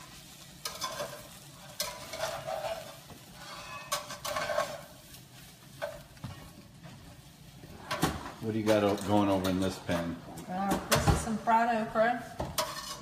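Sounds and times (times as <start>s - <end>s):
food sizzling in a skillet: 0.0s - 10.2s
utensil scraping a skillet: 0.0s - 11.0s, 12.2s - 13.0s.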